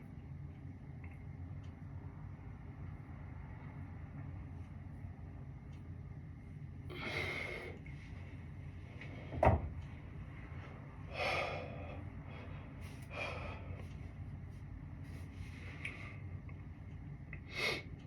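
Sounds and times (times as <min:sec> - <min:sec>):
steady low hum: 0:00.0 - 0:18.0
person breathing hard: 0:06.9 - 0:08.2, 0:11.0 - 0:14.2, 0:17.5 - 0:18.0.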